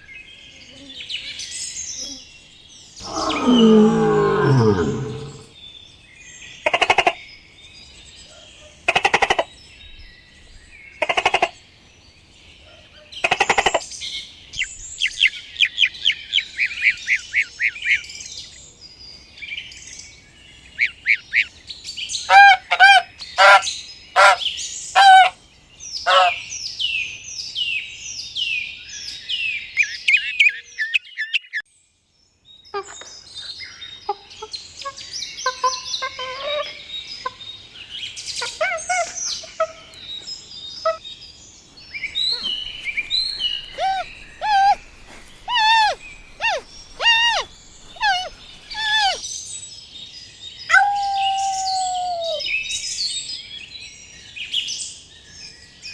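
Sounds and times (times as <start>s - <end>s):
birds calling and singing: 1.9s - 11.6s, 19.9s - 27.8s, 32.9s - 55.9s
high bird chirps: 42.0s - 49.2s, 50.7s - 52.8s.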